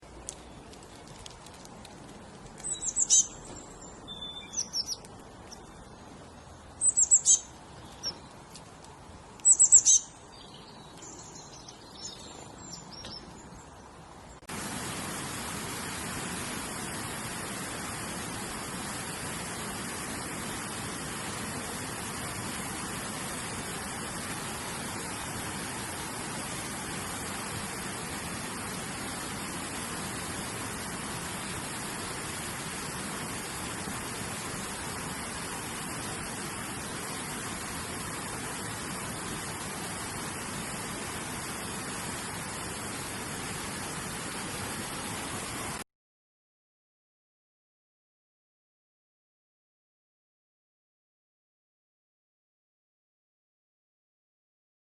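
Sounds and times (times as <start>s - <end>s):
steady hiss: 0.0s - 45.8s
bird chirping: 2.6s - 5.7s, 6.8s - 8.3s, 9.4s - 13.8s.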